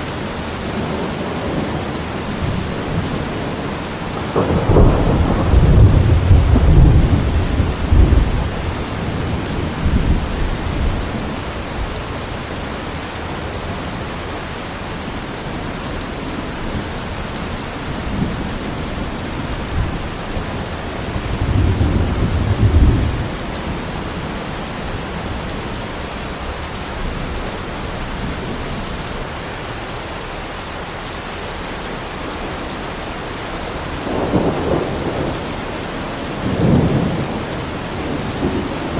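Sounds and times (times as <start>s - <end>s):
heavy rain: 0.0s - 38.9s
thunder rumbling: 0.8s - 12.4s, 16.4s - 29.4s, 33.8s - 38.9s.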